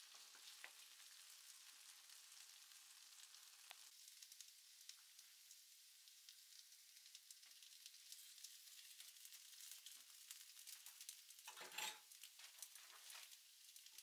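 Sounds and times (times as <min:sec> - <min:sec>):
potatoes sizzling in oil: 0:00.0 - 0:14.0
scrape in pan: 0:11.5 - 0:13.4.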